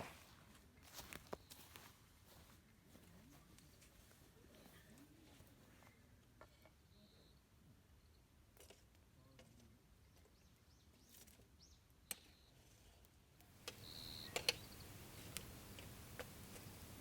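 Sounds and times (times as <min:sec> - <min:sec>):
sharp clicks: 0:13.6 - 0:16.7.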